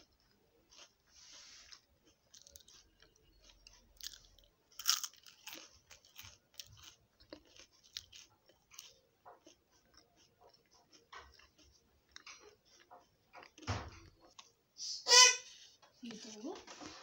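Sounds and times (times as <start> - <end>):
crunching and chewing: 0.0 - 14.6.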